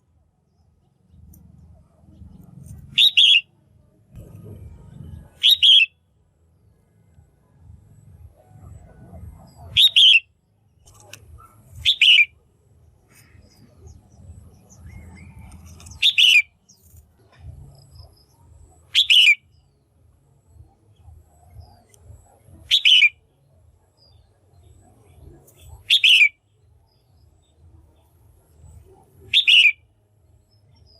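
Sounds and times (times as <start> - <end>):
faint low hum: 0.0 - 30.9
bird giving sharp calls: 2.9 - 3.4, 5.4 - 5.9, 9.6 - 10.2, 11.7 - 12.4, 15.8 - 16.6, 18.9 - 19.4, 22.7 - 23.1, 25.8 - 26.3, 29.3 - 29.8.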